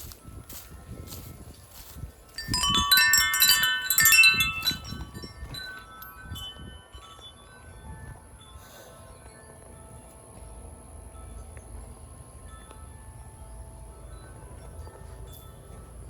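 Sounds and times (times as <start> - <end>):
metal wind chime jangling: 0.4 - 8.8, 14.0 - 16.0.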